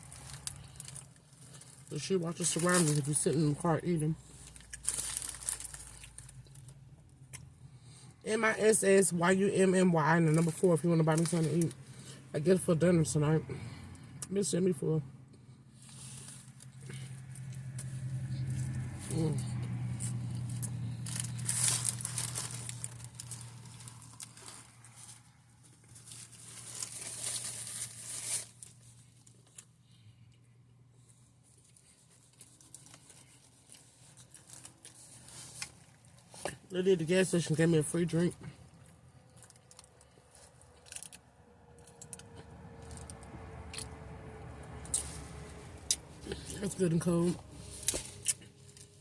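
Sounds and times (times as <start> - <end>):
food wrapper crinkling: 0.0 - 7.4, 15.8 - 25.2, 25.8 - 29.7, 31.7 - 36.5, 38.8 - 41.2.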